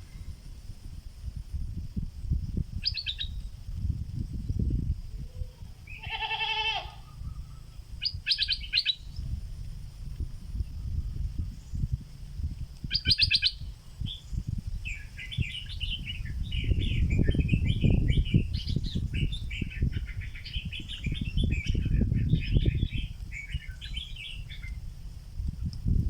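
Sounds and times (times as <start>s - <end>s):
low rustling noise: 9.1s - 13.0s.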